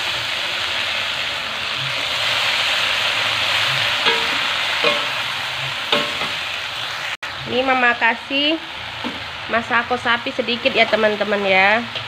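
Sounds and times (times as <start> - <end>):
greens sizzling in hot oil: 0.0 - 12.0
metal spatula clinking on wok: 4.0 - 5.2.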